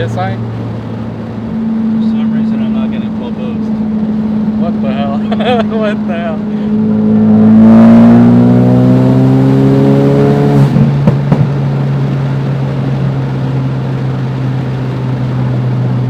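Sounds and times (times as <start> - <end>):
car engine revving hard: 0.0 - 16.0
exhaust pops: 10.4 - 13.4.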